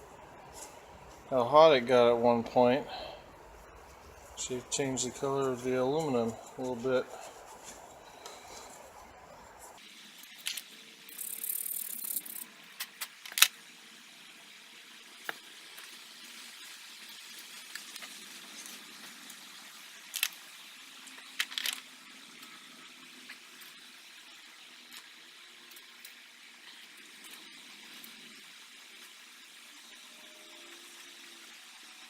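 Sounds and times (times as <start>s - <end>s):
metal parts and tools clicking: 10.4s - 13.5s
short hiss: 10.5s - 13.2s.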